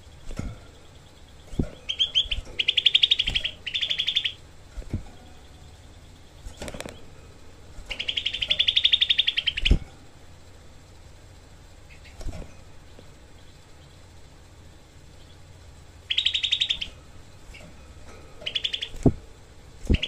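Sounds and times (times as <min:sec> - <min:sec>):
bird singing rapid harsh trill: 0:00.0 - 0:07.2, 0:07.9 - 0:09.8, 0:13.2 - 0:17.6, 0:18.4 - 0:19.1.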